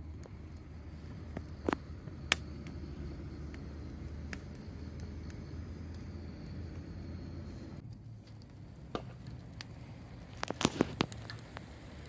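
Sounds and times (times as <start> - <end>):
sharp clicks and pops: 1.3 - 2.8, 7.8 - 11.7.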